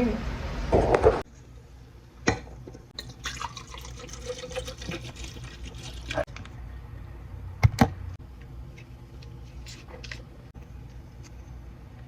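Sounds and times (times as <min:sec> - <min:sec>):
water pouring into container: 0:03.0 - 0:06.2.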